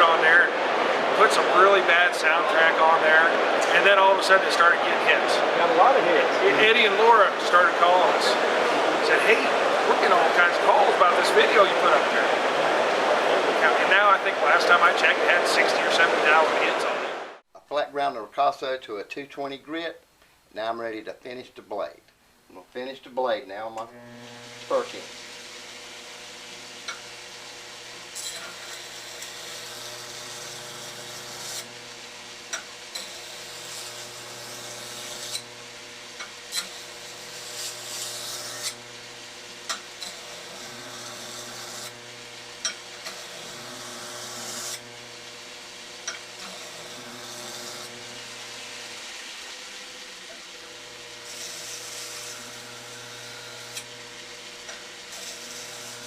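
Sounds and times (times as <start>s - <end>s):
belt grinder motor hum: 0.0s - 16.8s, 23.8s - 56.0s
blade grinding hiss: 24.3s - 31.7s, 32.5s - 38.8s, 39.6s - 44.9s, 46.0s - 50.5s, 51.1s - 56.0s.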